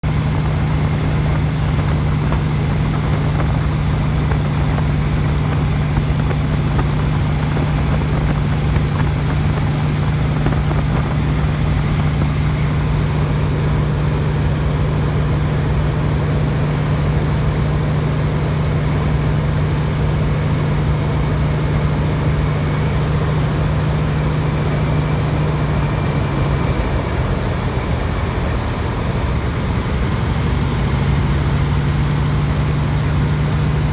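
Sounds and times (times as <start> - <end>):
radial engine running: 0.0 - 33.9
wind rushing: 0.9 - 13.0.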